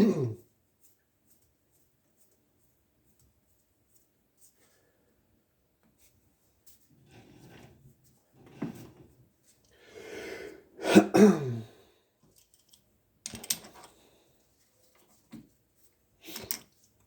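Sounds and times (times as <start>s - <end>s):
person clearing throat: 0.0s - 0.4s, 10.8s - 11.8s
person coughing: 0.0s - 0.4s, 10.8s - 11.8s.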